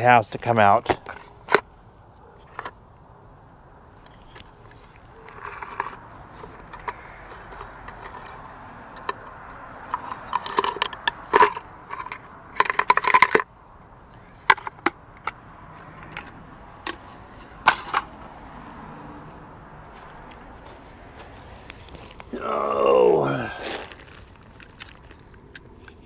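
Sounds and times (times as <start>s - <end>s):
metal tools clinking and knocking: 4.0s - 13.5s, 14.4s - 18.1s
rattling metal clatter: 9.0s - 13.5s, 14.4s - 18.2s.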